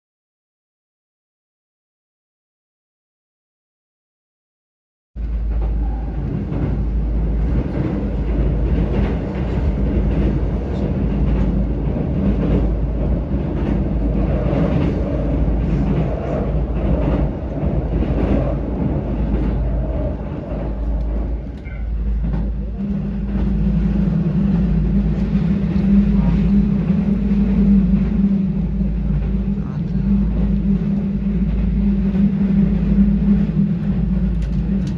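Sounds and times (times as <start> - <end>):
electric train rumbling: 5.2 - 34.9
low hum: 19.1 - 34.9.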